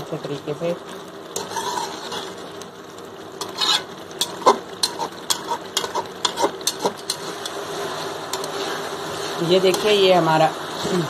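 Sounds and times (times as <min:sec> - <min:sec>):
chicken sizzling in oil: 0:00.0 - 0:11.0
spoon scraping metal pot: 0:01.4 - 0:02.4, 0:03.4 - 0:07.6, 0:08.3 - 0:08.9.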